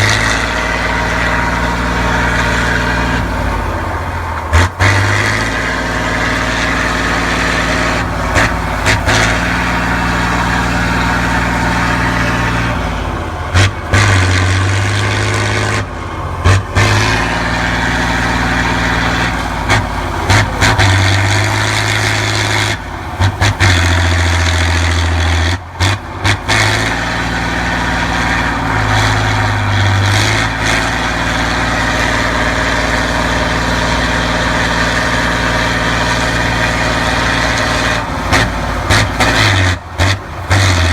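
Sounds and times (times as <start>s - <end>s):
truck engine revving: 0.0s - 40.9s.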